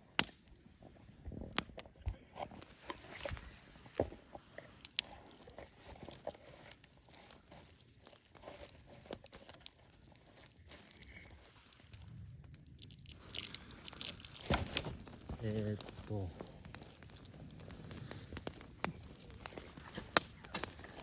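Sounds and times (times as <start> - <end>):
bonfire crackling and popping: 0.0 - 21.0.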